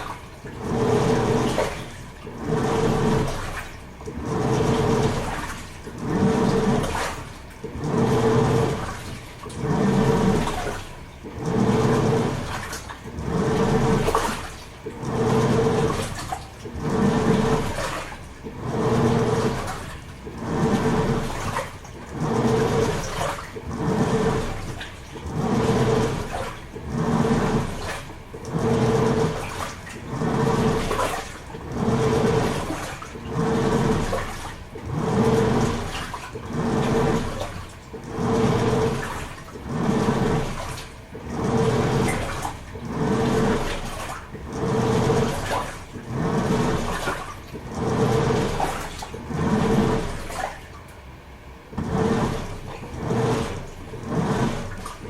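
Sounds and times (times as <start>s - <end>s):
washing machine motor humming: 0.0s - 55.0s
water and laundry swishing: 0.0s - 55.0s.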